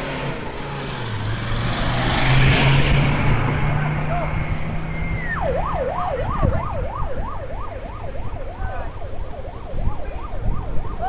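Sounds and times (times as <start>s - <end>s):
emergency siren yelping: 3.4s - 11.0s.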